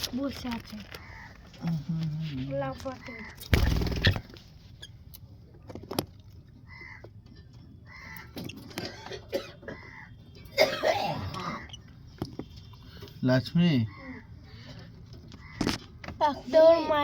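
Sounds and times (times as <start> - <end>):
young birds calling harshly: 0.7 - 1.6, 2.6 - 4.4, 6.7 - 7.1, 7.8 - 10.2, 13.7 - 17.0.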